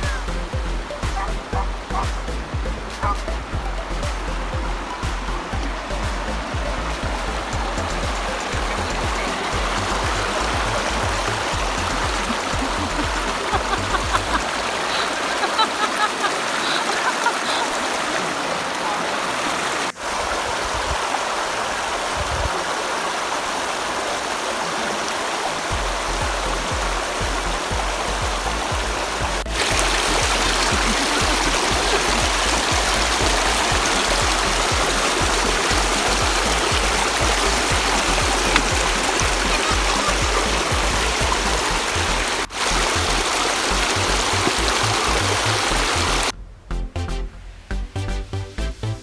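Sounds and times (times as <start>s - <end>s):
background music: 0.0s - 15.0s, 25.7s - 49.0s
low rumbles: 0.0s - 15.0s, 25.7s - 49.0s
river water rushing over rocks: 0.0s - 46.4s.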